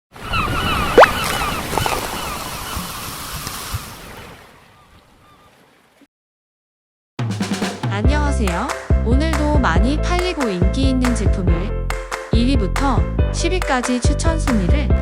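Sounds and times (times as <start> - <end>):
bird-like calls: 0.2 - 3.9, 4.6 - 5.8.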